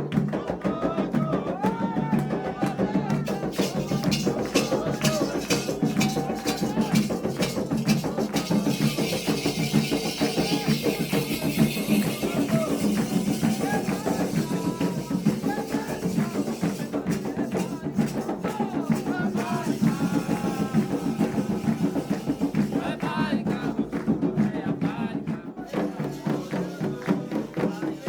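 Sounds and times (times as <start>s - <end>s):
drums beating fast: 0.0s - 28.0s
voices singing: 0.0s - 28.0s
rattle shaking: 3.2s - 24.1s.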